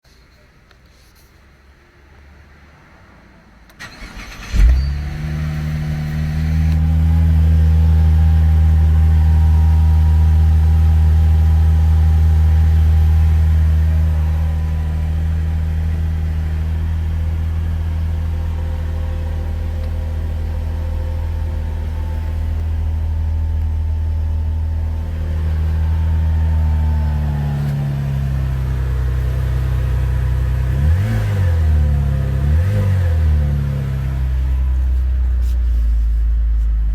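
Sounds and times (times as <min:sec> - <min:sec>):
car engine starting and idling: 0:03.4 - 0:36.9
engine revving: 0:03.8 - 0:35.0.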